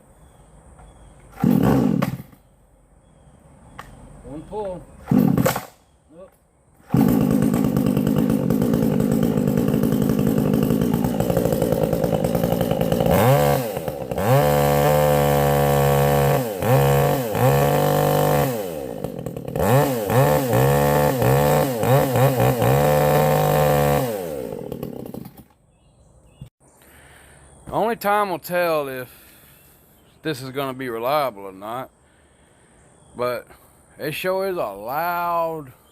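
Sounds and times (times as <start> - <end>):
chainsaw revving: 1.3 - 2.4, 5.0 - 5.7, 6.8 - 25.6.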